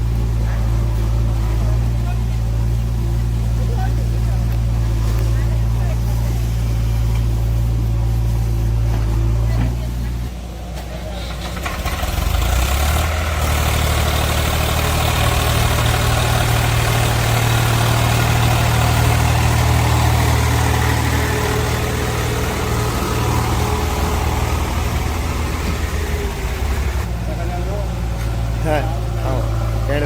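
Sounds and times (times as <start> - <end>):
heavy diesel engine running: 0.0 - 30.0.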